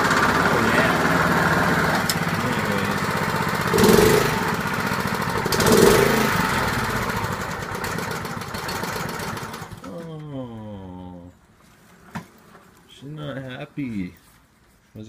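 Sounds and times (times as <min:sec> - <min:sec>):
lawn mower engine running: 0:00.0 - 0:09.9.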